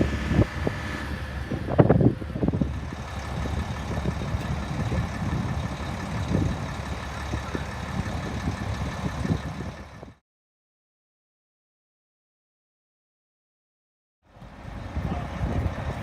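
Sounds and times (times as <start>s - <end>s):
truck engine rumbling: 0.0s - 10.2s, 14.3s - 16.0s.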